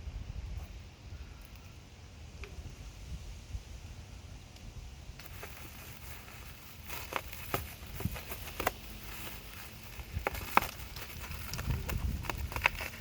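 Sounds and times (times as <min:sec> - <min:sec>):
packaging crackling: 0:05.2 - 0:13.0.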